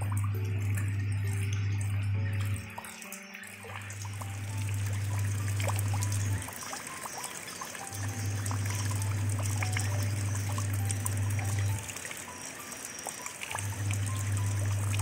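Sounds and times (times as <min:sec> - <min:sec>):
deep steady hum: 0:00.0 - 0:02.6, 0:04.0 - 0:06.4, 0:08.0 - 0:11.7
rain drips and splashes: 0:00.0 - 0:15.0
trickling water over pebbles: 0:00.0 - 0:15.0.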